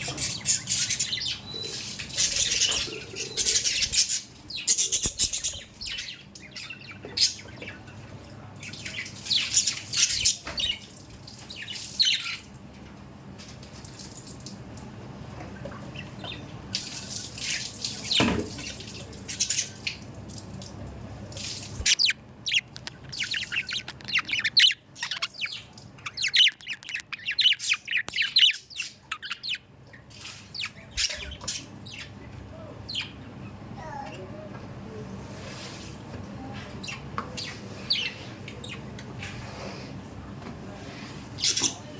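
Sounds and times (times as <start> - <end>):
budgerigars chirping: 0.0 - 7.8, 21.7 - 29.7, 30.5 - 32.2.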